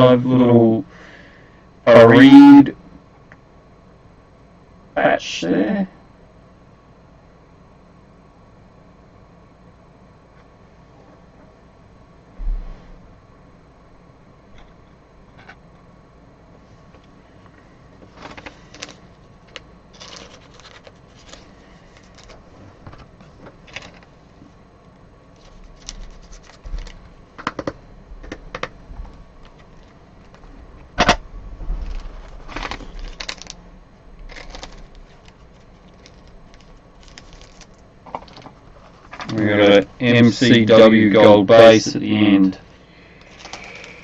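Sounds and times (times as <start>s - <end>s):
cards and wrappers rustling: 18.0s - 24.2s, 25.4s - 28.7s, 29.4s - 30.5s, 31.8s - 33.6s, 34.2s - 39.6s, 43.2s - 44.0s.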